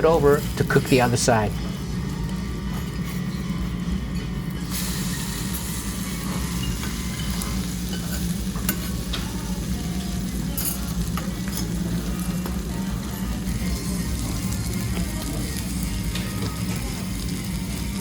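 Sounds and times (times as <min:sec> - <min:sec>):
steady low hum: 0:00.0 - 0:18.0
food sizzling on a griddle: 0:04.6 - 0:18.0.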